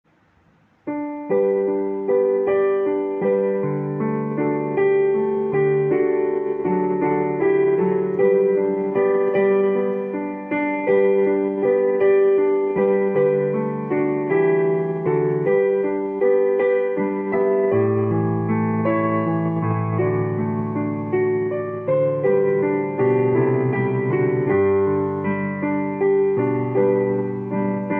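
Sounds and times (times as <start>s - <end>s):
piano playing sustained chords: 0.8s - 27.9s.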